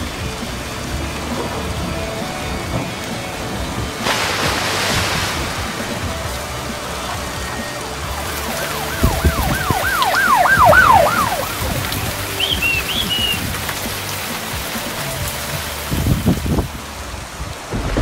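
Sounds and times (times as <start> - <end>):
heavy rain pouring: 0.0 - 18.0
siren-like electronic sweeps: 2.2 - 13.4
short high chirps: 12.4 - 13.4.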